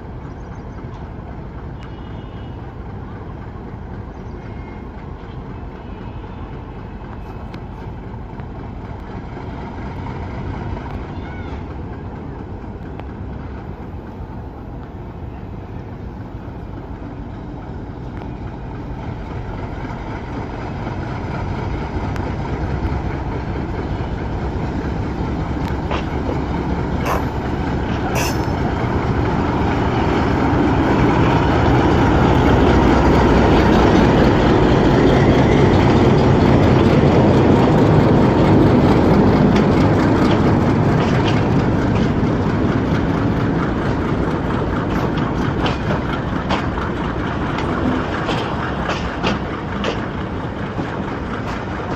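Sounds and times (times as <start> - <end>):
train running noise: 0.0 - 51.9.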